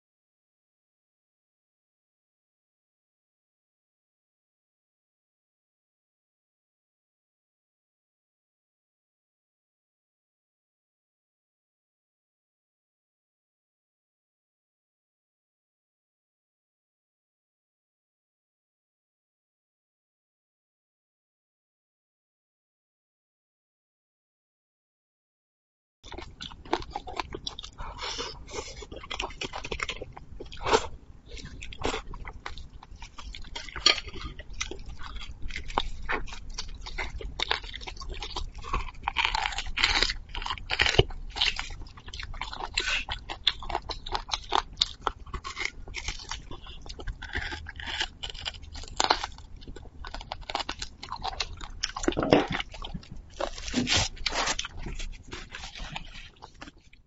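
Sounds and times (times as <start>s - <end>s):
wet chewing and crunching: 26.0s - 57.0s.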